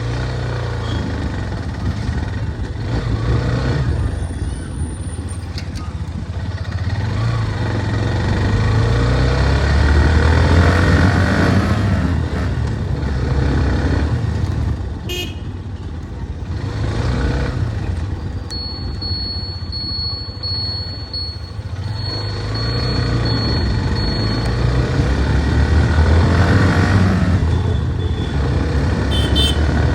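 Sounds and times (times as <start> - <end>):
traffic engines rumbling: 0.0 - 29.9
vehicle horn toot: 15.0 - 15.5, 29.0 - 29.9
high-pitched beeping: 18.4 - 25.5.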